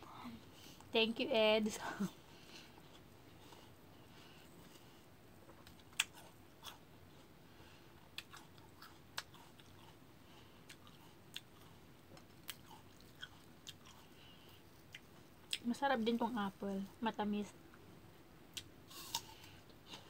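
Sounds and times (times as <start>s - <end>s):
person chewing fruit: 2.4s - 15.7s, 18.5s - 20.0s.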